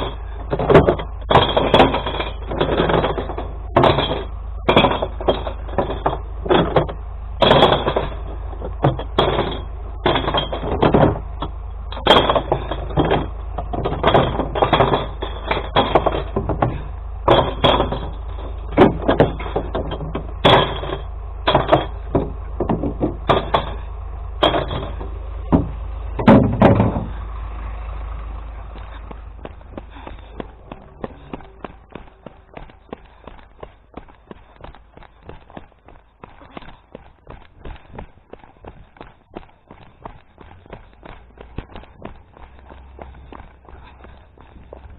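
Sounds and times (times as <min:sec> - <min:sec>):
glass bottles clinking and crashing: 0:00.0 - 0:27.1
steady low hum: 0:00.0 - 0:44.9.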